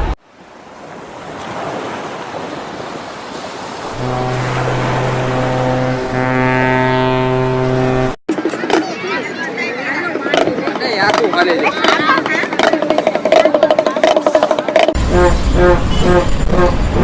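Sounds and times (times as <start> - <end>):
deep horn blasts: 3.8 - 8.2, 15.0 - 17.0.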